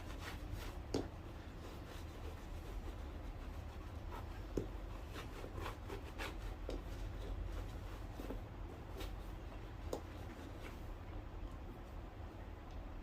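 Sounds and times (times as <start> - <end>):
low steady hum: 0.0 - 13.0
scrapes and taps on a shoe: 0.1 - 10.8.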